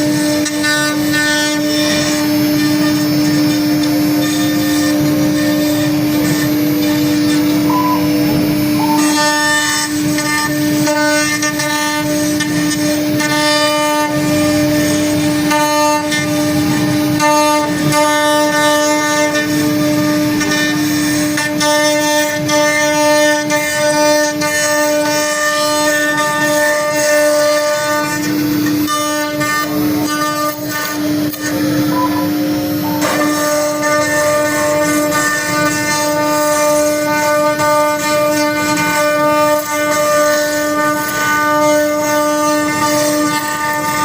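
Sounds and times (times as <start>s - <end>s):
router spindle whine: 0.0s - 44.0s
higher motor tones: 1.9s - 11.6s, 26.8s - 38.1s.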